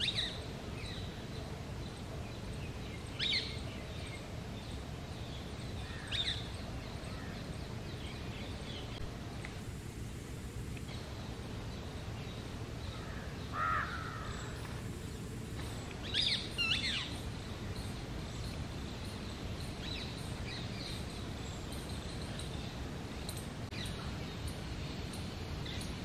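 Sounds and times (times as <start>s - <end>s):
outdoor background hiss: 0.0s - 26.0s
bird calls: 10.8s - 26.0s.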